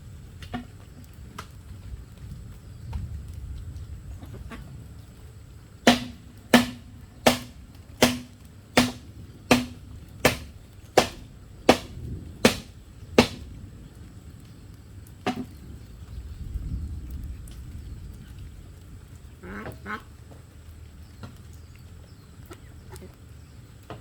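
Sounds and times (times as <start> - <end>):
tool striking bamboo: 5.9 - 13.5, 15.3 - 15.5.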